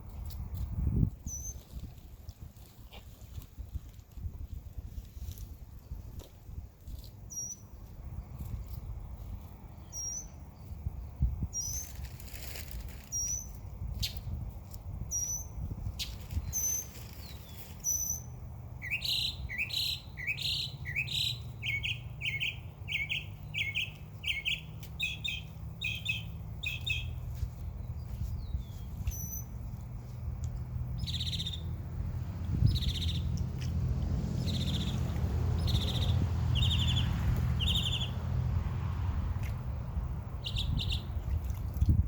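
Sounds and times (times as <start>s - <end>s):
birds chirping: 15.1s - 29.8s, 30.5s - 31.9s, 32.5s - 33.4s, 34.4s - 38.2s, 40.4s - 41.2s.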